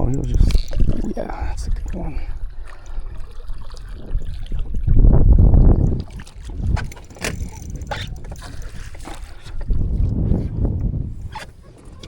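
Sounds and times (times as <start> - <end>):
sharp clicks and knocks: 6.7 - 8.7.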